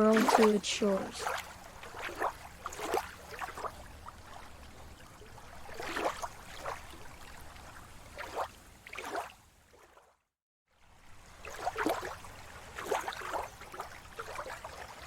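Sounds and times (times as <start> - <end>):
sea waves washing in: 0.0 - 9.3.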